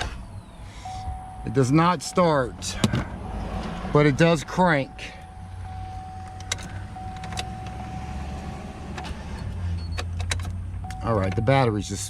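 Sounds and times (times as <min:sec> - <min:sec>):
steady high tone: 0:00.4 - 0:02.8, 0:03.9 - 0:08.3
man talking: 0:01.4 - 0:03.1, 0:03.9 - 0:05.3, 0:11.0 - 0:12.0.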